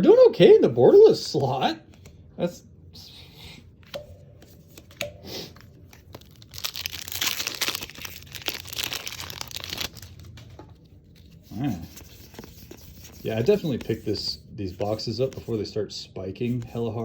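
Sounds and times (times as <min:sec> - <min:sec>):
plastic wrapper crinkling and tearing: 0:05.5 - 0:13.2.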